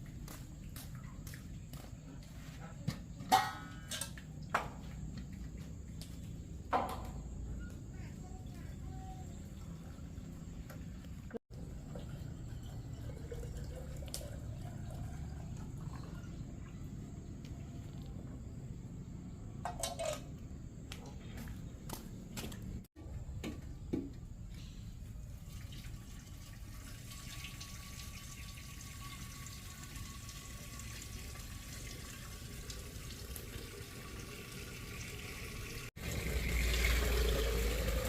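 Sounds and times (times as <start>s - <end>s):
water running and splashing: 25.3s - 38.0s.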